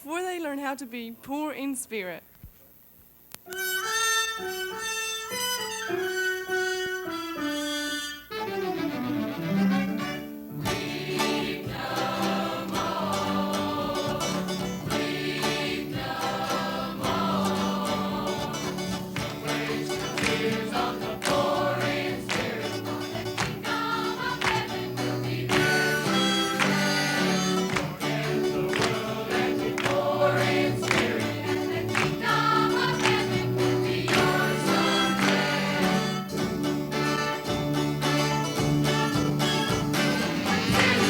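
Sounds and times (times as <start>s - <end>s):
instrumental accompaniment with beat: 9.4s - 41.0s
gospel choir singing: 10.6s - 41.0s.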